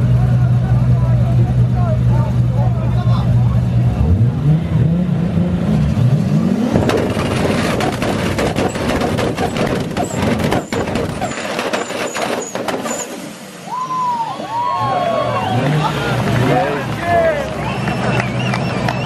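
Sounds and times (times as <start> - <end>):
exhaust bangs and crackles: 0.0 - 13.7
car engines revving: 0.0 - 19.0.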